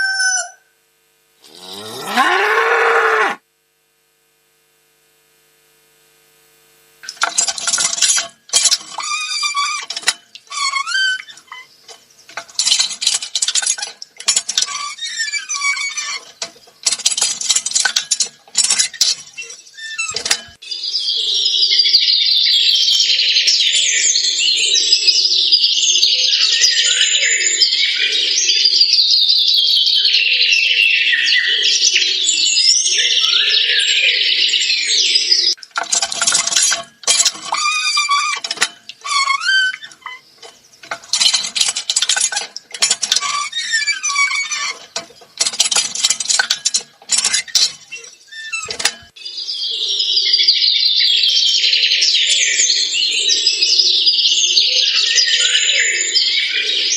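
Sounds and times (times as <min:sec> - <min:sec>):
dense bird chorus: 0:19.0 - 0:35.6, 0:47.9 - 0:56.9
birds chirping: 0:19.0 - 0:35.7, 0:47.9 - 0:56.9.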